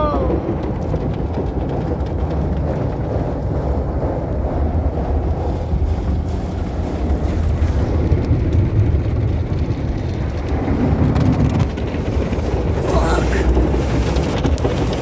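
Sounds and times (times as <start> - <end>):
car wash machinery rumbling: 0.0 - 15.0.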